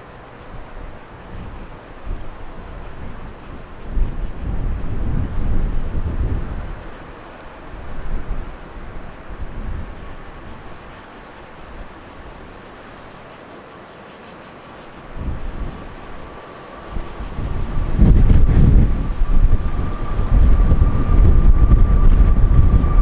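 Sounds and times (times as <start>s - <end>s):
insects chirring: 0.0s - 23.0s
wind gusts on microphone: 0.4s - 10.8s, 15.1s - 23.0s.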